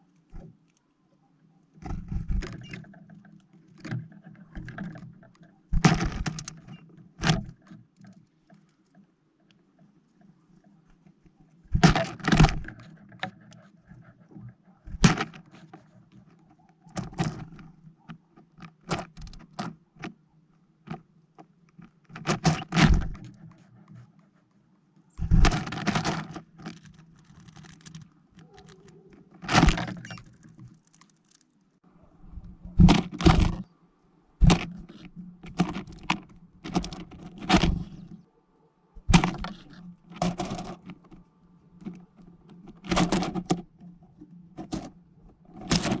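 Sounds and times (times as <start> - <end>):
birds pecking plastic feeder: 25.5 - 31.6, 34.4 - 38.2.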